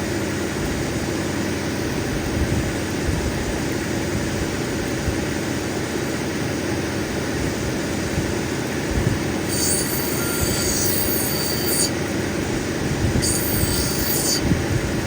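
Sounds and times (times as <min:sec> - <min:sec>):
grinding machine running: 0:09.2 - 0:15.0
high-pitched squeals: 0:09.5 - 0:12.0, 0:13.2 - 0:14.5.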